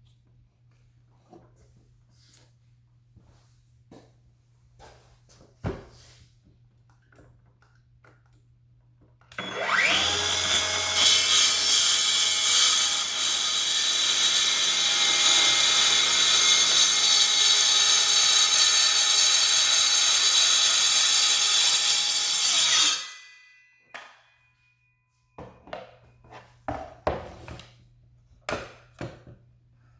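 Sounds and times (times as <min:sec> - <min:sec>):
circular saw cutting timber: 0:09.4 - 0:23.6.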